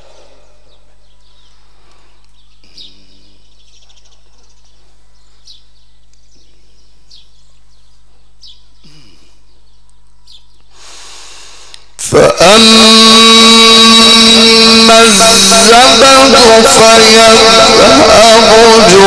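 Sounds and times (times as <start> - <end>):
small bird chirping: 0.1 - 10.8.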